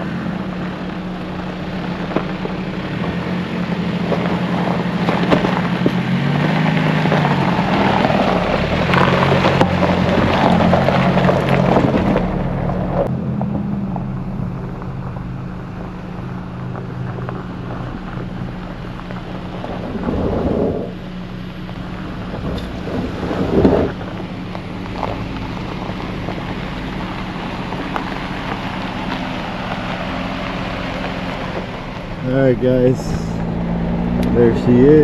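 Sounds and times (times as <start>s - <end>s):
rough driving noise: 0.0s - 35.0s
truck engine running: 0.0s - 35.0s
wind on microphone: 19.2s - 21.0s, 22.2s - 24.3s.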